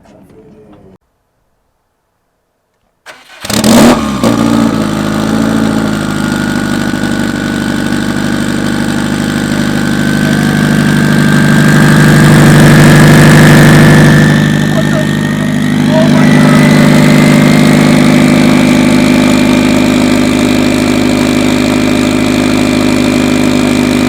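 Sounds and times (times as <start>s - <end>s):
car engine starting and idling: 3.0s - 24.0s
faint rising whine: 11.0s - 20.2s.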